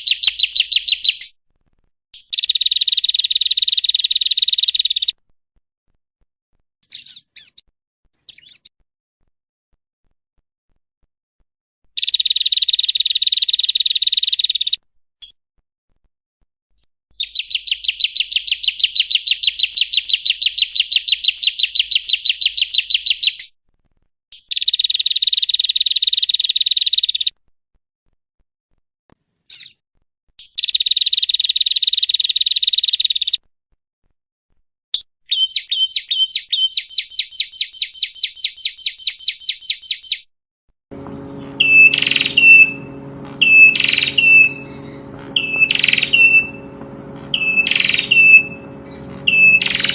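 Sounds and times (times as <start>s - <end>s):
bird trilling song: 0.0s - 1.3s, 2.2s - 5.1s, 6.8s - 7.6s, 8.3s - 8.7s, 12.0s - 15.4s, 17.2s - 23.5s, 35.3s - 40.3s, 40.9s - 49.9s
lower sound: 40.9s - 49.9s.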